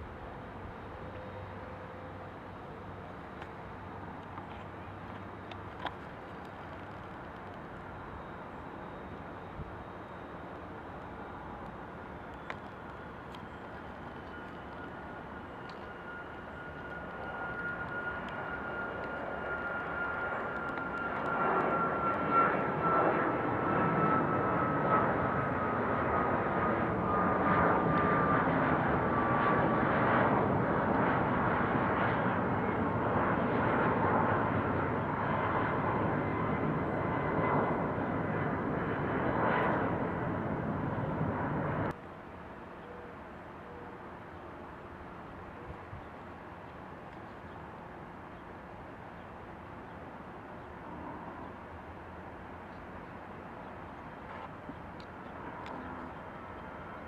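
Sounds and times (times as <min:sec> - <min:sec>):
jet engines whining: 0:10.5 - 0:41.9.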